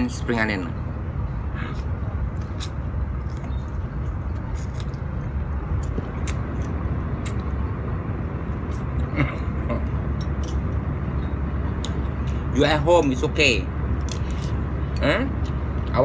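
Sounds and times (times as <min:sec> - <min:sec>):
low background rumble: 0:00.0 - 0:16.0
chewing crunchy spring onion: 0:01.6 - 0:07.7.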